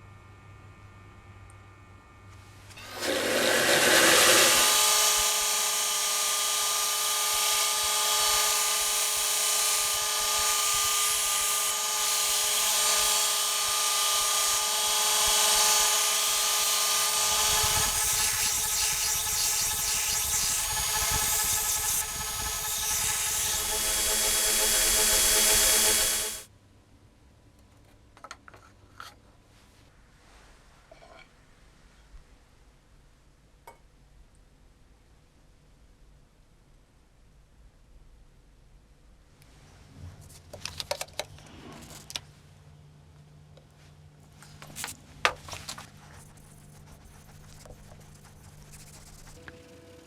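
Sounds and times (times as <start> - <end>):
electric power tool motor whining: 2.7 - 26.4.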